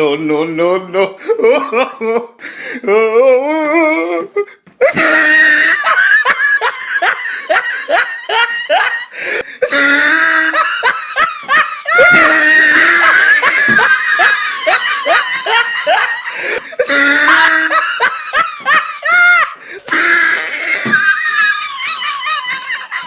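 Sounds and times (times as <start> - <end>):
hearty laughter: 4.8 - 23.0.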